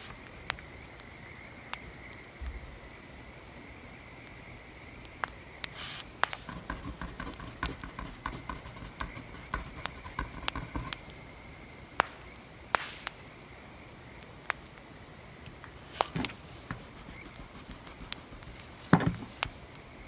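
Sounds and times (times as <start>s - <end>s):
wood fire crackling: 4.2s - 20.0s
sharp pops: 5.2s - 11.2s, 12.0s - 13.5s, 15.5s - 19.8s
soft scratching and ticking: 5.6s - 11.3s, 15.4s - 19.8s.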